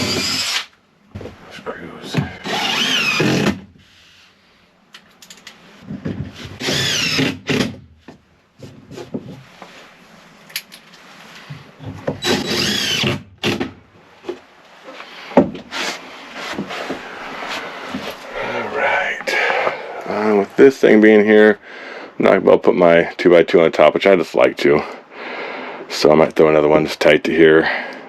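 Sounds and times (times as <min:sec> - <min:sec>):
power drill driving screws: 0:00.0 - 0:00.7, 0:02.4 - 0:03.6, 0:06.6 - 0:07.8, 0:12.2 - 0:13.6.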